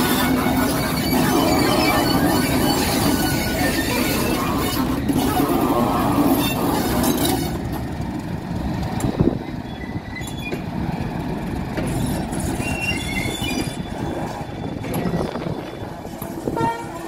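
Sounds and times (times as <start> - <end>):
faint wheel squeals: 0.0 - 7.6, 9.4 - 10.7, 11.8 - 16.2
diesel engine running: 0.0 - 15.0
wheels rumbling over rails: 0.0 - 17.0.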